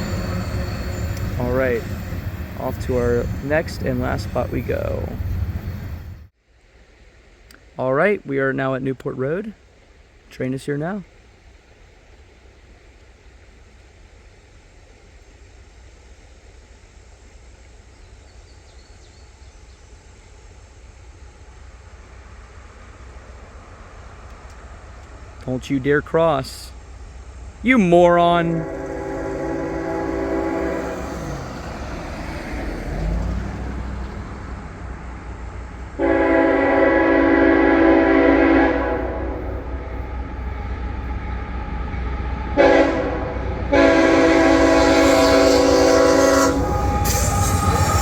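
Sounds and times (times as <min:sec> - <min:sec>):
freight train rumble: 0:00.0 - 0:48.0
locomotive air horn blasts: 0:28.3 - 0:31.8, 0:36.0 - 0:40.6, 0:42.2 - 0:48.0.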